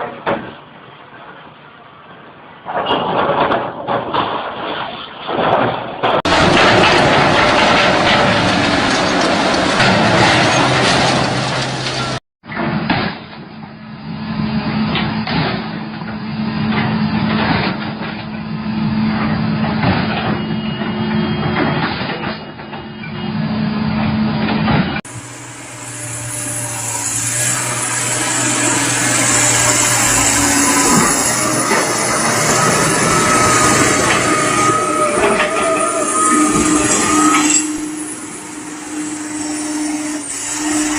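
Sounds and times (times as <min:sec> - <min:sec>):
machinery knocks and clanks: 0:05.4 - 0:13.4, 0:14.9 - 0:23.3, 0:24.4 - 0:39.9
heavy machinery engine hum: 0:06.2 - 0:40.9.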